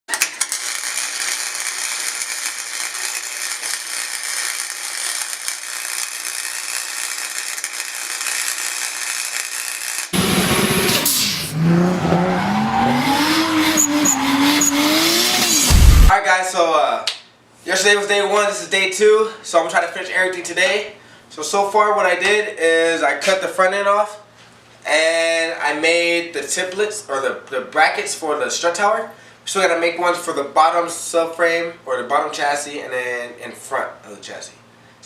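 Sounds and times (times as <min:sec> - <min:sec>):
car engine revving: 0:10.2 - 0:16.1.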